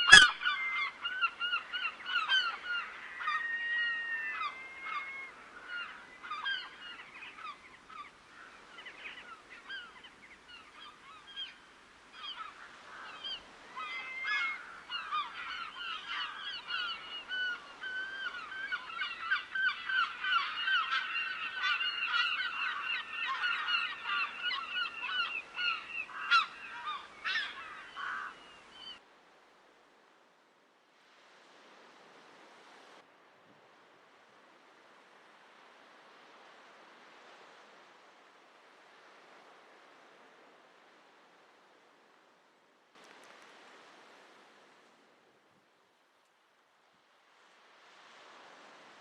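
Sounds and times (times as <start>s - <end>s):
waterbirds honking: 0.0s - 11.6s, 12.2s - 29.0s.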